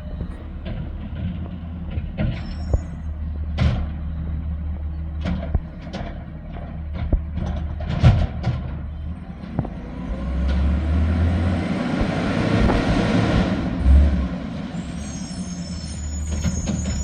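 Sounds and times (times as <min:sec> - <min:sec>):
garbage truck engine running: 0:00.0 - 0:17.0
rushing noise: 0:09.2 - 0:17.0
heavy thud: 0:11.9 - 0:14.2.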